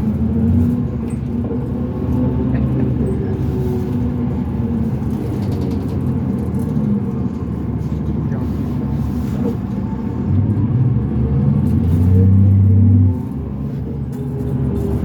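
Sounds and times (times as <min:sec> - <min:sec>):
diesel bus running: 0:00.0 - 0:15.0.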